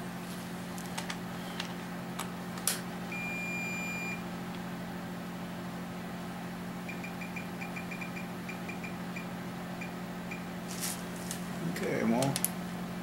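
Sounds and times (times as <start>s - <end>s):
steady low hum: 0.0s - 13.0s
electronic beep: 3.1s - 4.2s, 6.9s - 10.4s.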